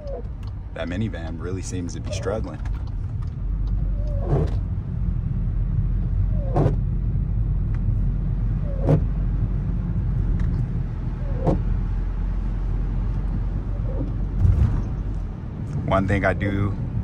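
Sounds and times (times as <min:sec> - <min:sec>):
car interior road noise: 0:00.0 - 0:17.0
falling squeak and click: 0:03.9 - 0:04.6, 0:06.4 - 0:06.8, 0:08.6 - 0:09.0, 0:11.2 - 0:11.6, 0:13.7 - 0:14.2.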